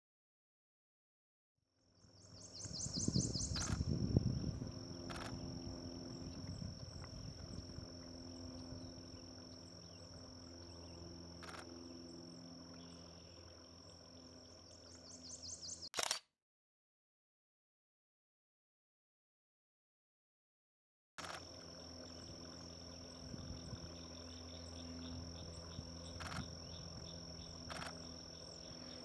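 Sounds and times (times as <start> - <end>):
warbler singing: 2.0 - 11.2, 11.8 - 15.9, 21.7 - 29.0
short sharp clicks: 15.9 - 16.3.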